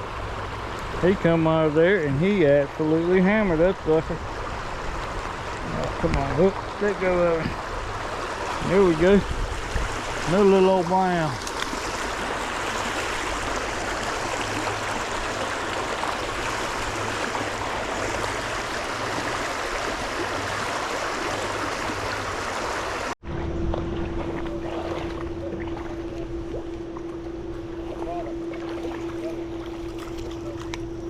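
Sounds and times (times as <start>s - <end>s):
stream water rushing: 0.0s - 23.2s
steady low hum: 0.0s - 31.0s.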